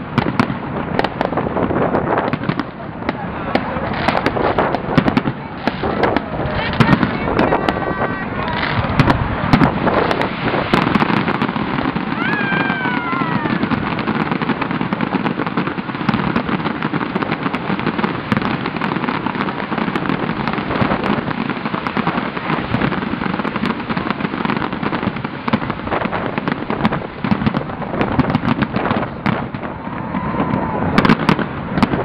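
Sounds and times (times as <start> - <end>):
fireworks crackling and banging: 0.0 - 32.0
loud firework crack: 0.0 - 32.0.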